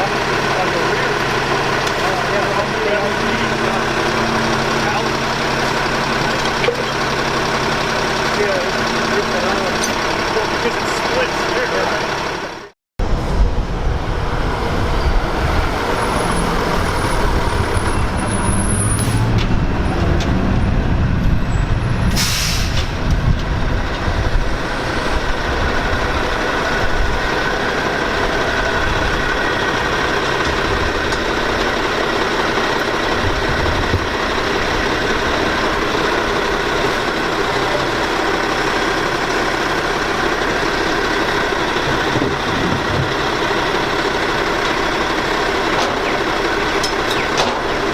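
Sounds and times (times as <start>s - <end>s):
garbage truck running: 0.0s - 47.9s
air hiss: 22.1s - 22.8s.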